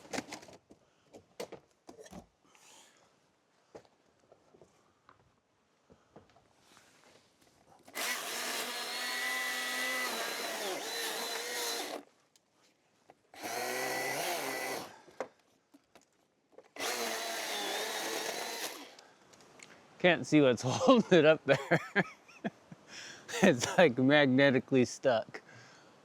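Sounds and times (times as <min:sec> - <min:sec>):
chainsaw cutting: 0:07.9 - 0:12.0, 0:13.4 - 0:15.0, 0:16.8 - 0:19.0.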